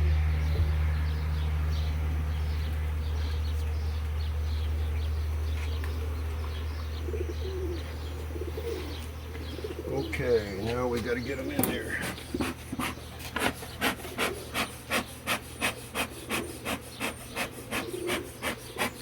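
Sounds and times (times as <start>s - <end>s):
small birds chirping: 0.0s - 19.0s
steady low hum: 0.0s - 19.0s
dove cooing: 7.0s - 10.4s, 11.7s - 19.0s.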